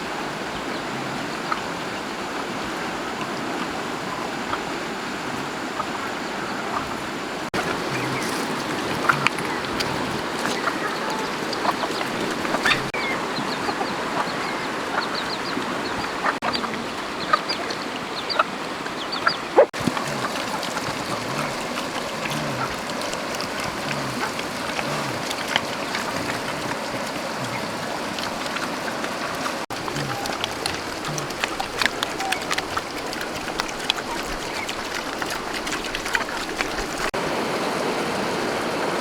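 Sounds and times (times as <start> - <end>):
steady outdoor hiss: 0.0 - 39.0
chickens clucking: 7.5 - 37.2.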